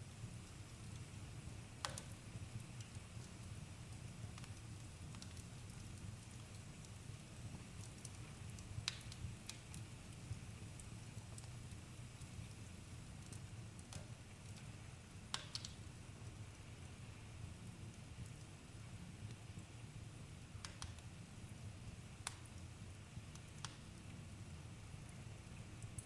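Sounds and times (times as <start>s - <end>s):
campfire crackling: 1.8s - 16.4s.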